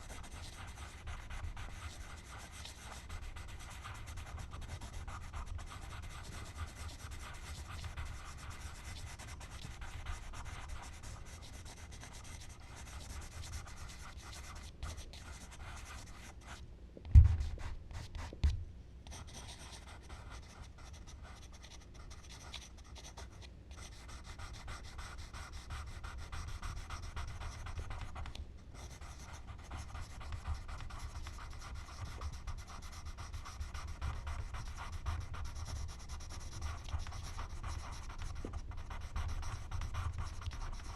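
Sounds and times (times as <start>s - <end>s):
charcoal scratching on paper: 0.0s - 16.6s, 19.1s - 40.9s
dull low knocks: 17.1s - 17.6s.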